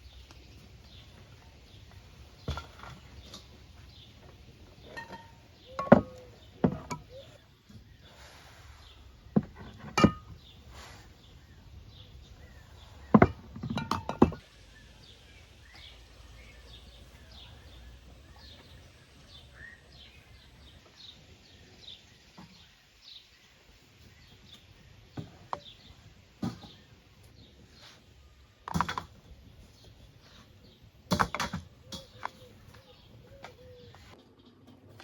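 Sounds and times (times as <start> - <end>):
small birds chirping: 0.0 - 35.0
sharp knocks and clinks: 9.8 - 10.5.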